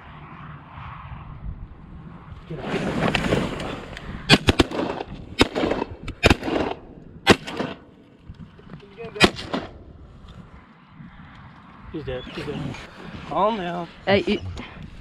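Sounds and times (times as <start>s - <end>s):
shotgun blasts: 4.3s - 7.9s, 9.2s - 9.8s.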